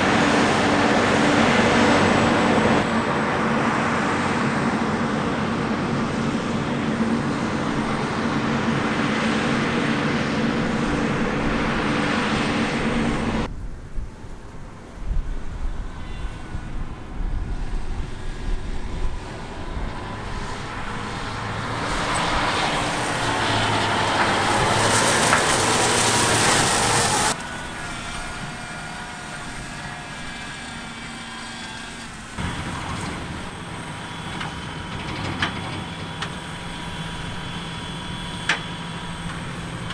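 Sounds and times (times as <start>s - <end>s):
diesel machinery running: 0.0s - 13.5s, 14.8s - 39.9s.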